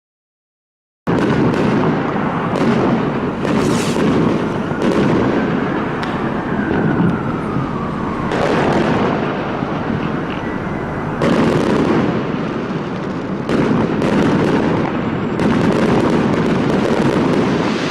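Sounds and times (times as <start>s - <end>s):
fireworks bangs and crackles: 1.1s - 17.9s
falling firework whistle: 1.2s - 12.9s, 17.0s - 17.9s.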